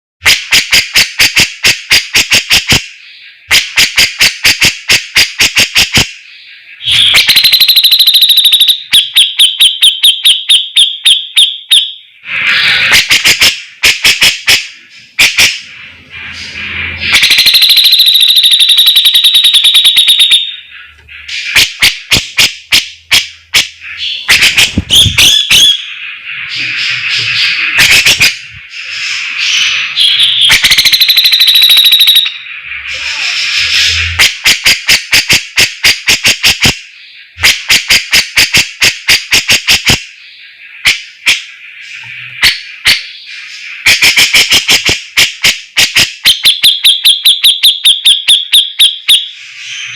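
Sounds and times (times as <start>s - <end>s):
bird chattering song: 0.2s - 38.5s
buzzy bird trills: 11.0s - 35.0s.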